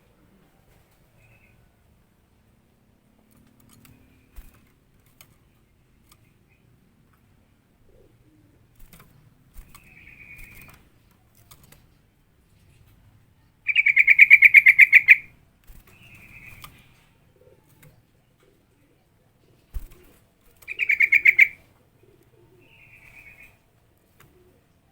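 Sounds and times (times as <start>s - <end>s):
bulbul rattling chatter: 13.7s - 15.2s, 20.7s - 21.6s.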